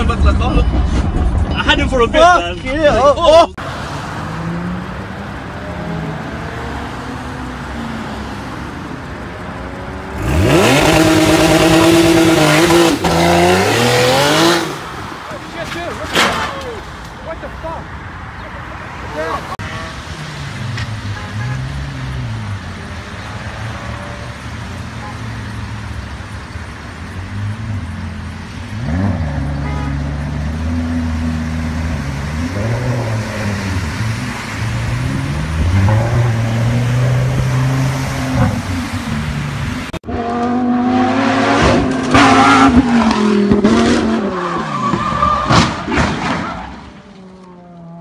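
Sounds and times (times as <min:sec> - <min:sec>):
car engine running hard: 0:02.9 - 0:15.4
car engine revving: 0:03.6 - 0:15.0, 0:19.0 - 0:47.0.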